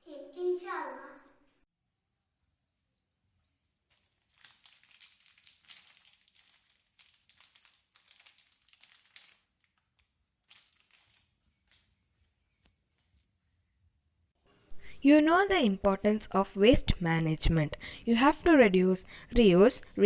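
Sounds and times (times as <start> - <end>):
faint rustling and crinkling: 3.8 - 13.5.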